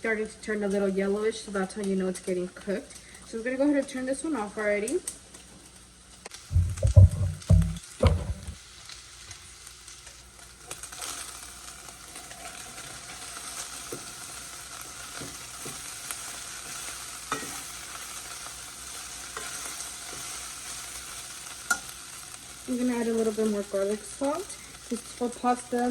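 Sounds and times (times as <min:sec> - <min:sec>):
chicken sizzling in oil: 0:00.0 - 0:25.9
low thump: 0:06.5 - 0:08.6.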